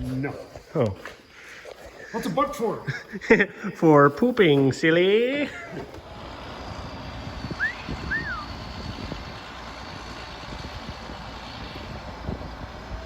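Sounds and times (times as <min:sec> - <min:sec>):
engine running: 0:05.3 - 0:13.0.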